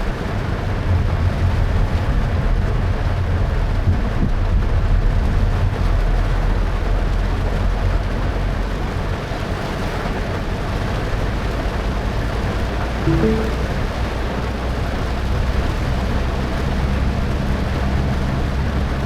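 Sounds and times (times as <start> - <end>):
heavy rain: 0.0 - 12.6
short pitched sound: 13.1 - 14.1.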